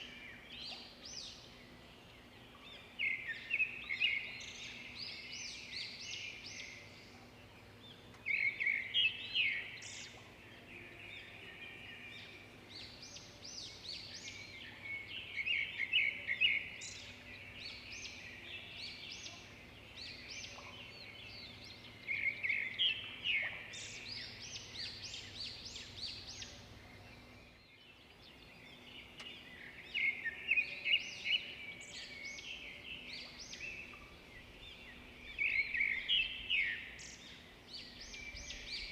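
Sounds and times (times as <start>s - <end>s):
faint steady hum: 0.0s - 38.9s
songbirds chirping: 0.0s - 38.9s.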